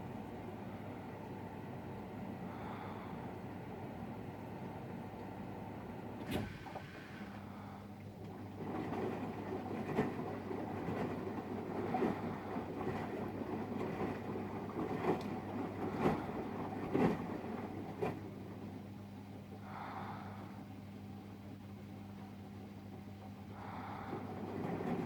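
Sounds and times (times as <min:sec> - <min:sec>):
washing machine motor hum: 0:00.0 - 0:25.0
water swishing in drum: 0:06.2 - 0:18.8.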